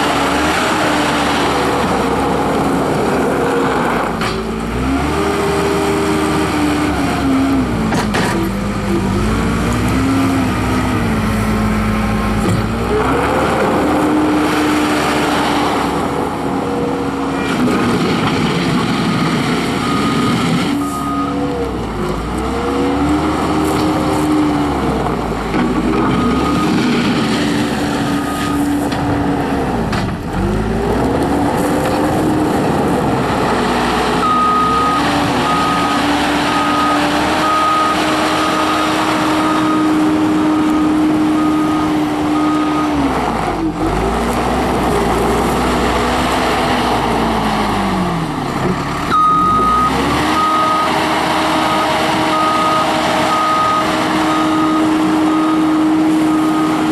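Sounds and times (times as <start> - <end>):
diesel loader engine working: 0.0 - 56.9
reversing alarm beeps: 19.7 - 21.6, 26.1 - 27.0, 27.8 - 28.7, 34.2 - 40.2, 49.1 - 56.9.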